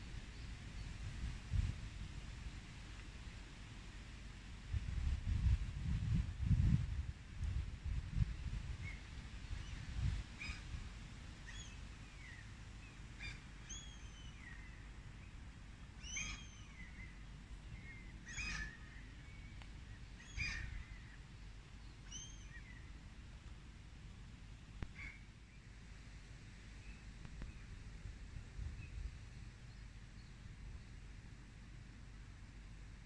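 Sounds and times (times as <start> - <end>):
wind on microphone: 0.0 - 2.3, 4.6 - 11.0, 27.2 - 29.3
wild birds chirping: 11.4 - 23.1, 24.8 - 25.8.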